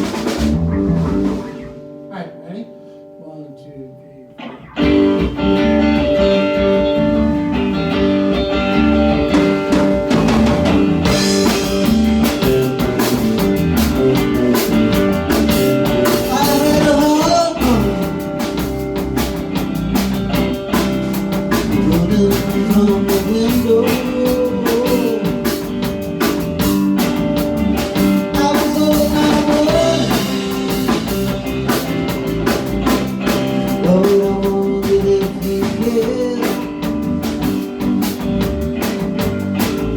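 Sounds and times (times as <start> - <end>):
drum kit beat: 0.0 - 2.6, 4.4 - 39.9
guitars strumming: 0.0 - 39.9
person singing: 16.0 - 18.2, 21.7 - 25.7, 28.2 - 30.7, 33.7 - 37.0.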